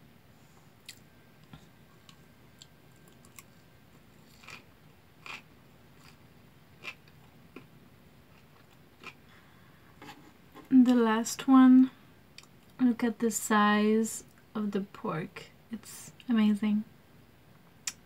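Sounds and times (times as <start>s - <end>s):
person chewing: 0.8s - 6.2s, 6.8s - 7.7s, 8.3s - 9.3s.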